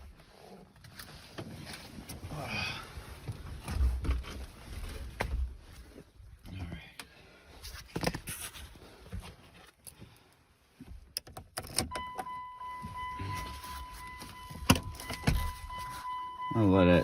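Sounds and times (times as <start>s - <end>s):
high-pitched electronic warning tone: 11.9s - 17.0s.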